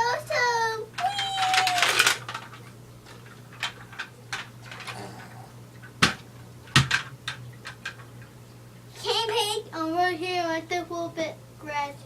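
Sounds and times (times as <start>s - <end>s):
toys knocking together: 1.0s - 2.6s, 6.0s - 8.0s.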